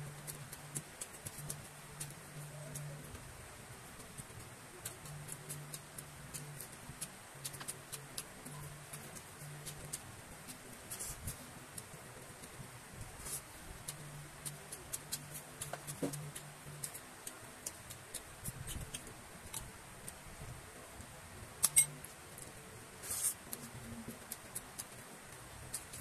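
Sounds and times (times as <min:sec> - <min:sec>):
metal spoon against ceramic bowl: 0:21.6 - 0:22.0.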